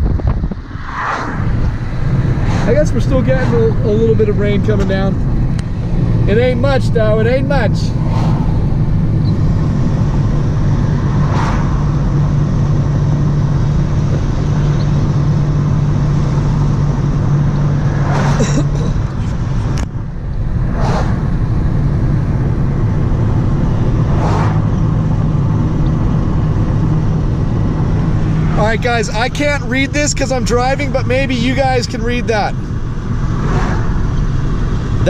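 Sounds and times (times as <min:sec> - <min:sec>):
car engine and road hum: 0:00.0 - 0:35.0
brief swishes: 0:20.7 - 0:21.2.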